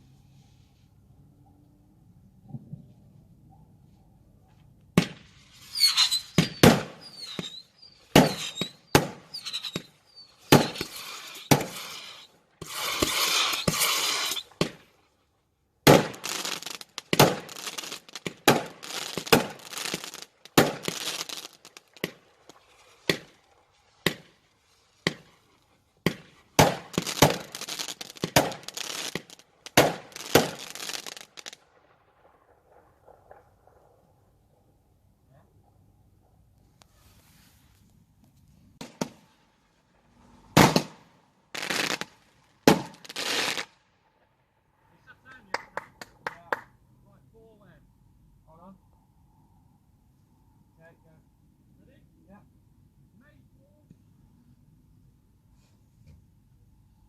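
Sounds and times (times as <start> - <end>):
firework whistles: 5.0 - 14.8, 42.7 - 43.8
fireworks bangs: 5.0 - 15.0, 15.8 - 24.4, 25.0 - 25.4, 26.0 - 34.6, 38.8 - 39.4, 40.5 - 43.8
dense firework crackling: 5.0 - 15.2, 15.8 - 35.0, 38.8 - 43.8.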